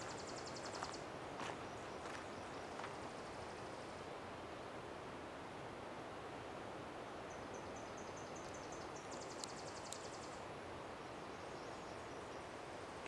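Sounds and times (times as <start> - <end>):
songbird singing and trilling: 0.0 - 1.0, 7.3 - 10.4
steady outdoor hiss: 0.0 - 13.0
faint ticks: 8.4 - 10.4.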